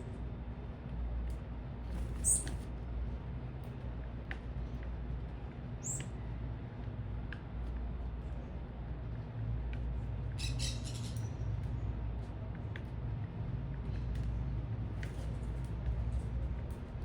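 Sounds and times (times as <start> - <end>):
city traffic rumble: 0.0 - 17.0
small birds chirping: 2.1 - 2.6, 5.8 - 6.3, 10.3 - 11.8.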